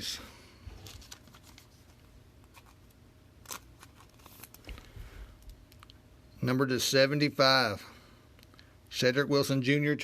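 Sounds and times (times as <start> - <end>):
trading cards clicking and rustling: 0.8 - 6.0.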